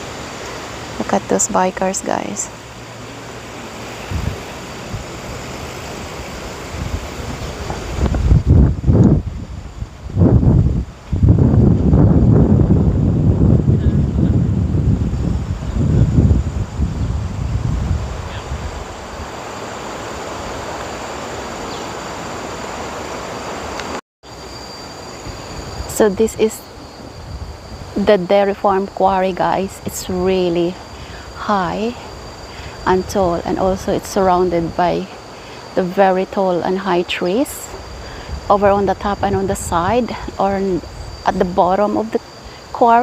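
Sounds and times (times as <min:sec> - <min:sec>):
wind blowing through trees: 0:00.0 - 0:43.0
wind buffeting microphone: 0:04.0 - 0:19.4, 0:37.4 - 0:42.6.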